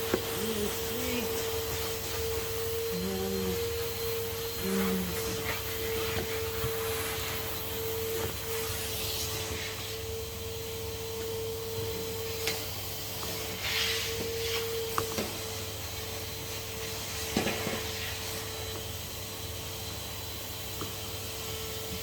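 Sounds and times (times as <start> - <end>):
vacuum cleaner whining: 0.0 - 22.0.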